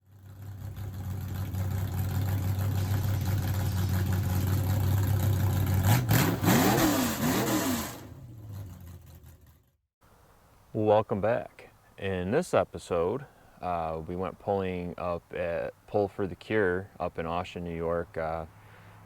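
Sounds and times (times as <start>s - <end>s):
garden tractor engine revving: 0.0s - 9.8s.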